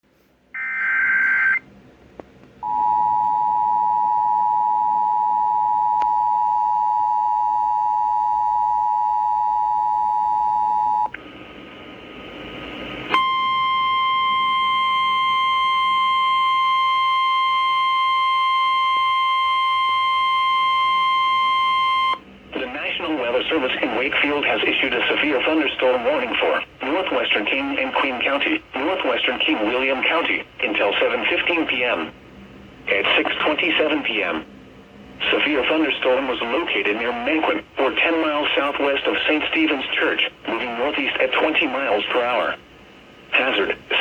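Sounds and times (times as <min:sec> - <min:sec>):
buzzy data-header tones: 0:00.6 - 0:01.6
steady warning alarm tone: 0:00.6 - 0:01.6, 0:02.6 - 0:11.1, 0:13.1 - 0:22.2
two-tone attention signal: 0:00.6 - 0:01.6
radio hiss: 0:22.5 - 0:32.2, 0:32.9 - 0:34.5, 0:35.2 - 0:42.7, 0:43.3 - 0:44.0.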